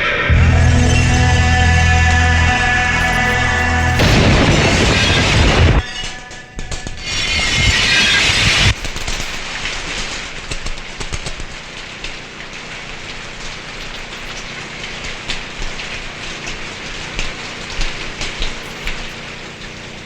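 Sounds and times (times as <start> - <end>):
loud music: 0.0 - 5.8
steady rain falling: 8.8 - 20.0.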